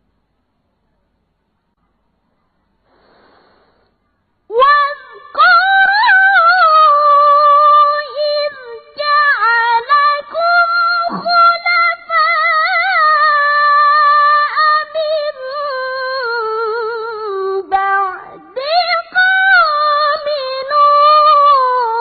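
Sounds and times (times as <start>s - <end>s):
quick breath: 2.8s - 4.1s.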